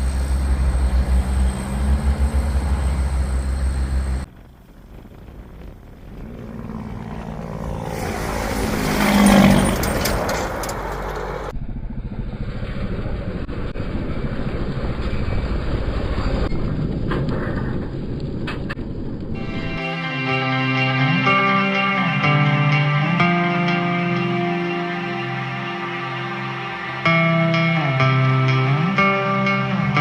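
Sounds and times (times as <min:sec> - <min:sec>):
vehicle passing: 0:00.0 - 0:16.5, 0:19.4 - 0:29.8
steady engine hum: 0:00.0 - 0:17.1, 0:18.8 - 0:30.0
engine or machinery noise: 0:00.0 - 0:19.9.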